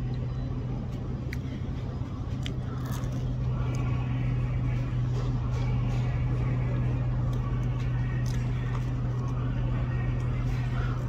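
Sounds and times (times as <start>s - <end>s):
low hum: 0.0s - 11.0s
person chewing food: 2.2s - 4.0s
small crunches and clicks: 2.3s - 3.8s, 7.3s - 9.4s.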